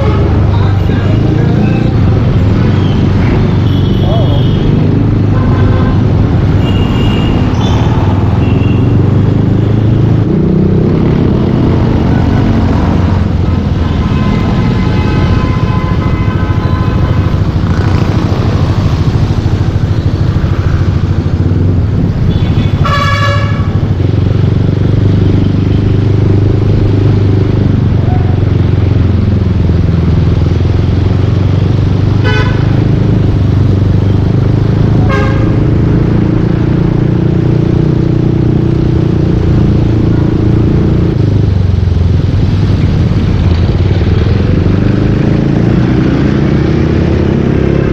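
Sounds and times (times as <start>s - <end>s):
vehicle horn honking: 5.3s - 7.8s, 13.9s - 17.4s, 22.3s - 23.7s, 32.2s - 32.8s, 35.0s - 35.7s.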